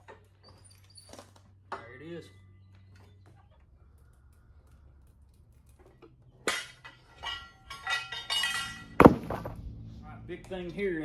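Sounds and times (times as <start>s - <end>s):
steel tools clanking: 6.4s - 9.6s
loud knock: 9.0s - 9.6s.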